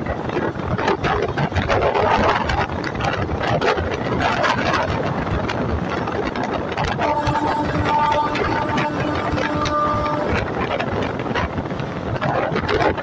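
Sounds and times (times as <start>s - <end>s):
train wheels clattering on rails: 0.0s - 13.0s
wind rushing on microphone: 0.0s - 13.0s
steady pitched tone: 7.0s - 11.0s.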